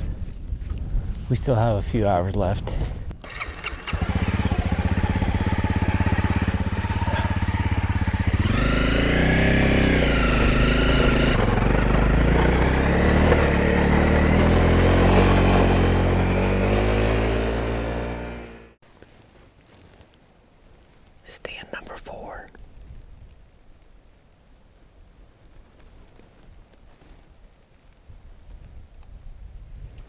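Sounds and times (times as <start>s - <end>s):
dirt bike engine: 3.2s - 18.8s.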